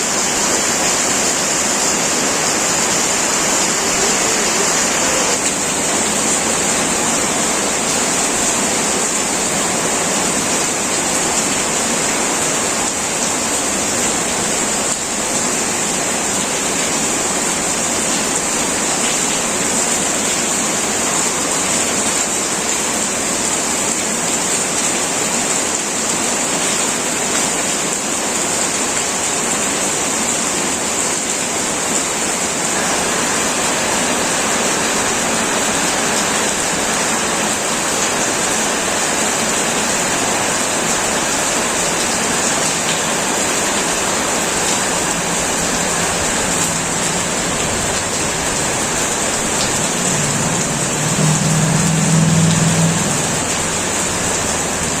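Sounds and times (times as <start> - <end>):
heavy rain on a metal roof: 0.0 - 55.0.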